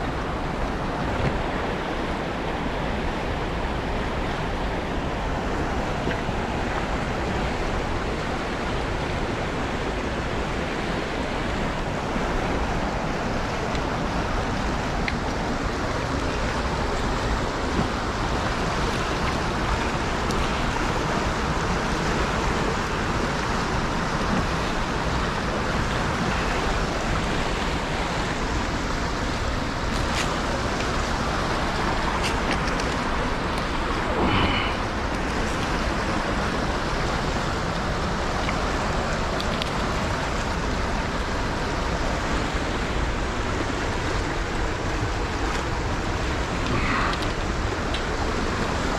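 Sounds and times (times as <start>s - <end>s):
river water rushing: 0.0s - 48.9s
faint clicks: 46.6s - 48.1s.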